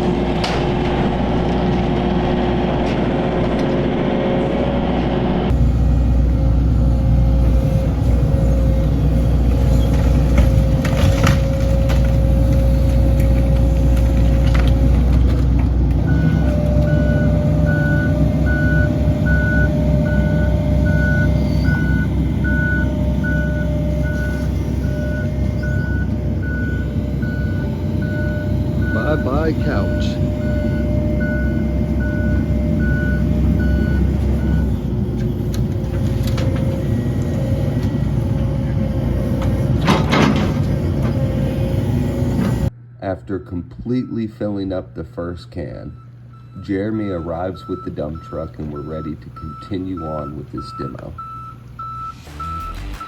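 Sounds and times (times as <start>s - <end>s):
excavator engine running: 0.0s - 42.9s, 45.6s - 53.0s
debris cracking: 9.5s - 16.9s
backup alarm beeping: 16.0s - 34.8s, 43.9s - 44.4s, 45.8s - 53.0s.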